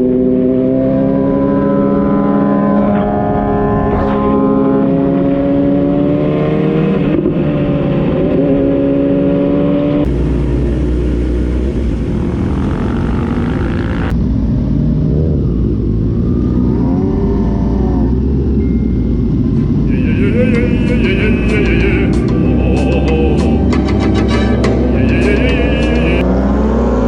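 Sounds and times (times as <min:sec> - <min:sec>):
road noise: 0:00.0 - 0:27.0
motorcycle engine running: 0:10.1 - 0:18.6.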